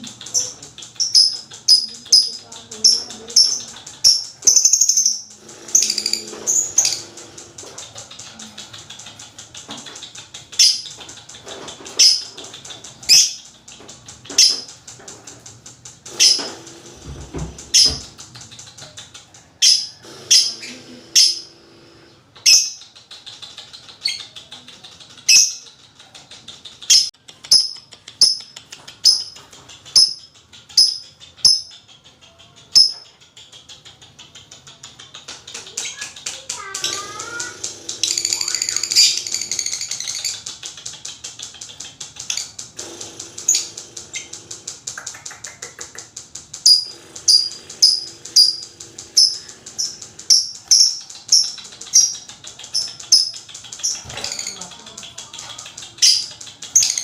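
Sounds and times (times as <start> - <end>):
lovebird ticking chatter: 0.0 - 57.0.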